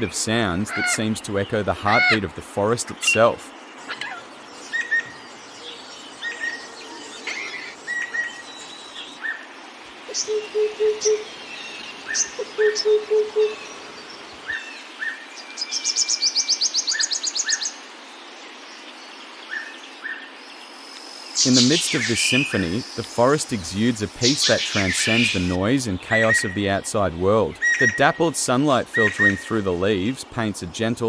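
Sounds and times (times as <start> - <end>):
birds chirping: 0.0 - 31.0
low hooting bird call: 10.1 - 15.2, 24.1 - 26.6
rapid high bird trill: 21.1 - 26.7.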